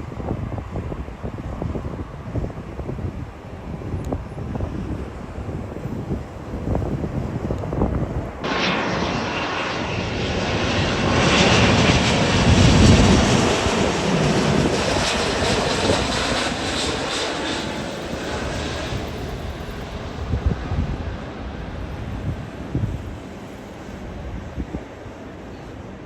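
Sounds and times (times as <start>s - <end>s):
jet airliner passing: 4.5s - 25.1s.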